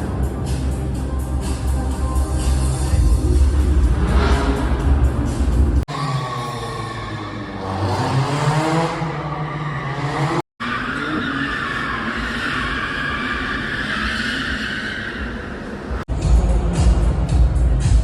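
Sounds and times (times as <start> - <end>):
car engine revving: 2.0 - 14.4
tyre squeal: 9.0 - 15.8.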